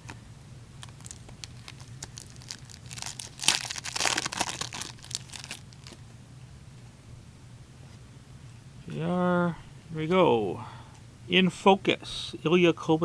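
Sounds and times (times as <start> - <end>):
foil wrapper crinkling and tearing: 0.8 - 6.0.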